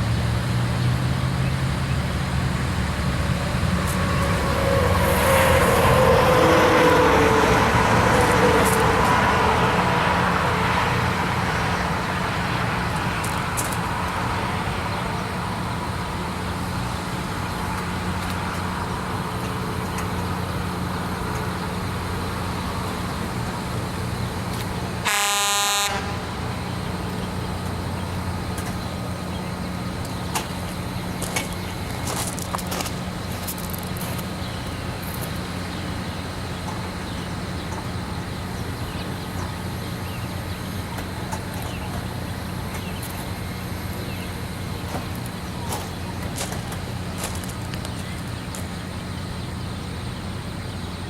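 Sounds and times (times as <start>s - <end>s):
low engine hum: 0.0s - 51.0s
rail grinder moving away: 0.0s - 51.0s
short horn toot: 25.0s - 26.3s.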